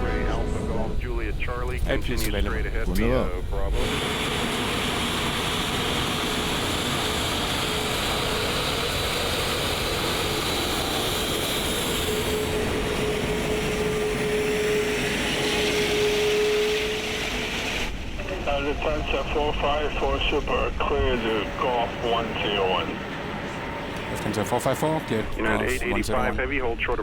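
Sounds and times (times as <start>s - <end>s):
jet engine taxiing: 0.0s - 27.0s
thin steady whine: 10.2s - 27.0s.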